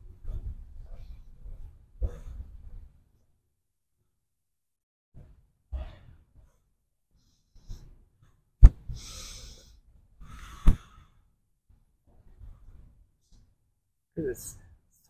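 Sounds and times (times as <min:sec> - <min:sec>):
person breathing heavily: 0:08.9 - 0:11.2.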